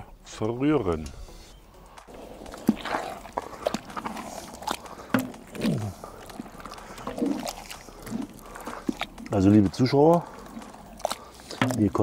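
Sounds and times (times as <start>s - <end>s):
utensil knocking and scraping pot: 2.4s - 12.0s.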